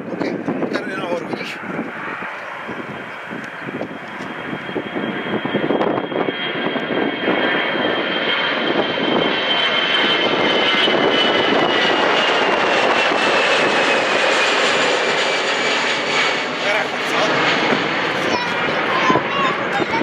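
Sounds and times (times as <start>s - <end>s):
jet engines at takeoff: 0.0s - 20.0s.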